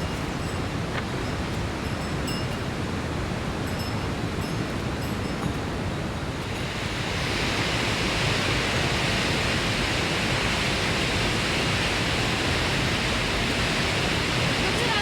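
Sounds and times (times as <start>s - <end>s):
water rushing: 5.6s - 15.0s.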